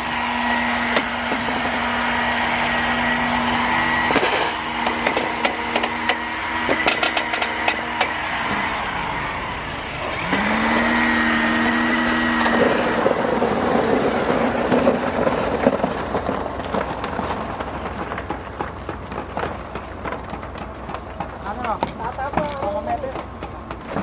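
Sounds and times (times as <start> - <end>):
motor hum rising in pitch: 0.0 - 16.3
machinery engine noise: 0.0 - 24.0
clatter: 3.1 - 8.8, 9.7 - 24.0.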